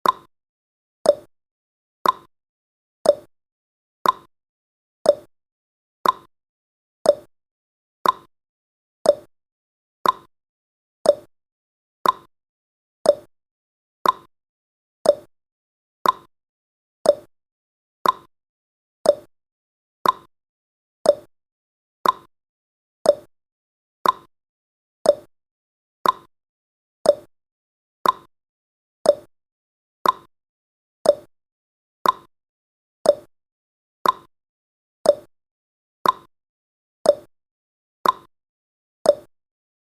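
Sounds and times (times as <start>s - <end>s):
timer clicking: 0.0s - 0.3s, 1.0s - 1.3s, 2.0s - 2.3s, 3.0s - 3.3s, 4.0s - 4.3s, 5.0s - 5.3s, 6.0s - 6.3s, 7.0s - 7.3s, 8.0s - 8.3s, 9.0s - 9.3s, 10.0s - 10.3s, 11.0s - 11.3s, 12.0s - 12.3s, 13.0s - 13.3s, 14.0s - 14.3s, 15.0s - 15.3s, 16.0s - 16.3s, 17.0s - 17.3s, 18.0s - 18.3s, 19.0s - 19.3s, 20.0s - 20.3s, 21.0s - 21.3s, 22.0s - 22.3s, 23.0s - 23.3s, 24.0s - 24.3s, 25.0s - 25.3s, 26.0s - 26.3s, 27.0s - 27.3s, 28.0s - 28.3s, 29.0s - 29.3s, 30.0s - 30.3s, 31.0s - 31.3s, 32.0s - 32.3s, 33.0s - 33.3s, 34.0s - 34.3s, 35.0s - 35.3s, 36.0s - 36.3s, 37.0s - 37.3s, 38.0s - 38.3s, 39.1s - 39.3s.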